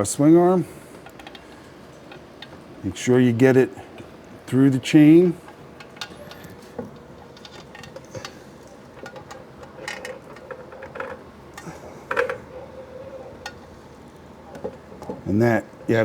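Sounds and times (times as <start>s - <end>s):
light metallic clinks and knocks: 5.4s - 15.2s.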